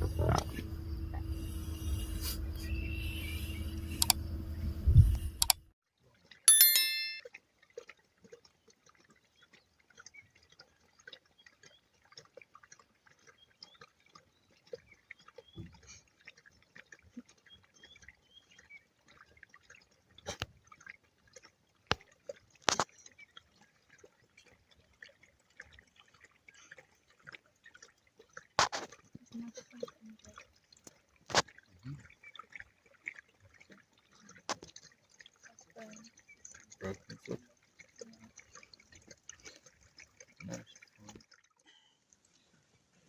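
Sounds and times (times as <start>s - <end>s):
sharp clicks: 4.0s - 4.2s
high ringing tone: 6.5s - 7.2s
wet clicks and drips: 7.6s - 42.4s.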